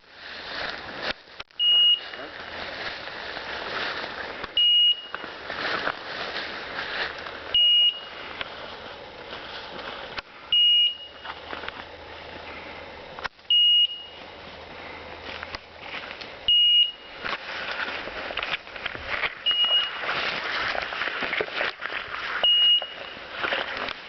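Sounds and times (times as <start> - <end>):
rustling of brush: 0.0 - 10.5, 14.2 - 24.0
short high beeps: 1.6 - 2.2, 4.6 - 5.2, 7.6 - 8.2, 10.5 - 11.3, 13.5 - 14.2, 16.5 - 17.1, 19.4 - 20.1, 22.4 - 23.2.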